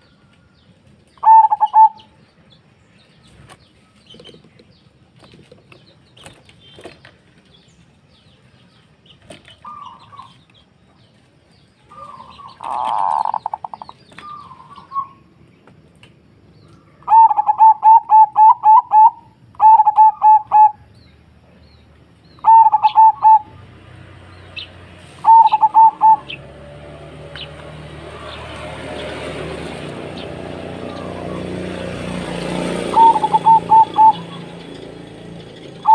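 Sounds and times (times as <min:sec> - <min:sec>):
dove cooing: 0:01.2 - 0:02.1, 0:11.9 - 0:15.2, 0:17.0 - 0:20.9, 0:22.4 - 0:23.6, 0:25.2 - 0:26.4, 0:29.7 - 0:34.9, 0:35.6 - 0:35.9.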